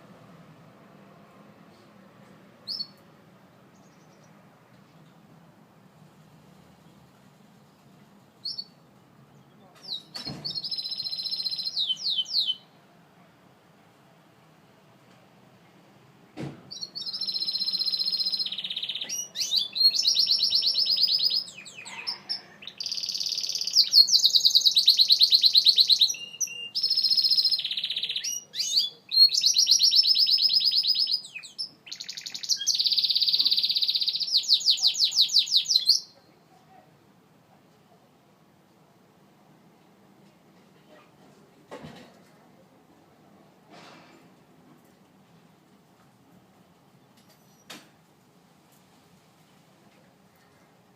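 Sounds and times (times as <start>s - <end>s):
canary singing trilled phrases: 2.6s - 3.0s, 8.4s - 8.8s, 9.8s - 12.8s, 16.7s - 36.4s.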